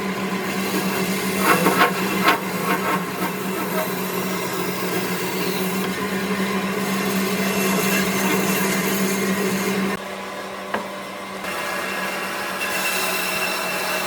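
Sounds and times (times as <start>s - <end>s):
workshop noise: 0.4s - 10.0s
power tool motor humming: 0.7s - 5.8s.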